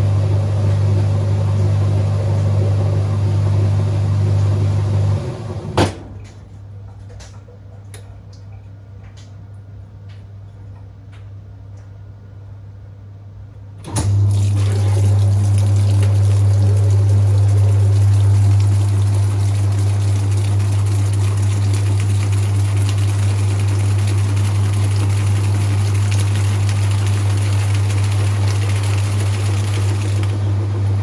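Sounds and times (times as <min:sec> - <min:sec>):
water rushing through pump: 0:00.0 - 0:06.0, 0:13.8 - 0:31.0
washing machine motor humming: 0:00.0 - 0:09.3, 0:13.8 - 0:31.0.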